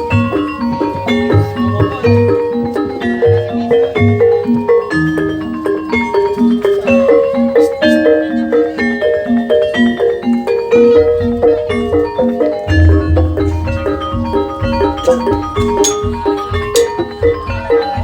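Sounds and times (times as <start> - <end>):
gamelan music: 0.0 - 18.0
deep gong strokes: 12.7 - 15.8.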